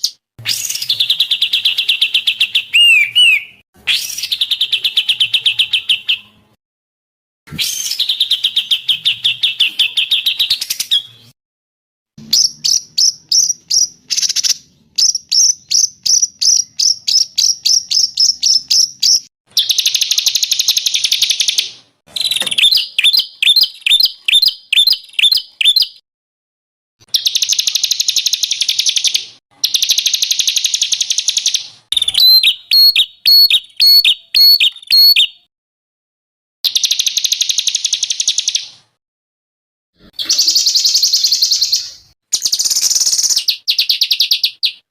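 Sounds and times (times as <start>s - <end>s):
songbird trills and chirps: 0.0s - 6.3s, 12.2s - 26.0s, 27.2s - 35.5s
harsh buzzy bird phrases: 31.9s - 35.3s.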